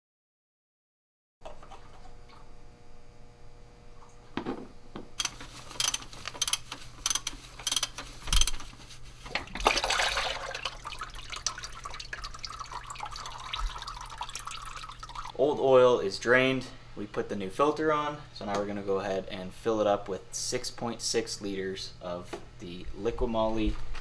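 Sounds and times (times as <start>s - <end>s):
clicks and knocks: 5.2s - 8.7s
oil splashing into a pan: 9.5s - 15.3s.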